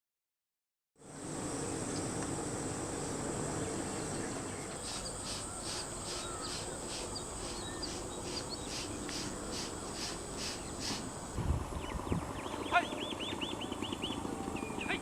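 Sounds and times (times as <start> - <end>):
insect pulsing call: 1.0 - 15.0
insects high-pitched whine: 1.0 - 15.0
low outdoor rumble: 1.0 - 15.0
faint bird chirps: 4.0 - 11.0.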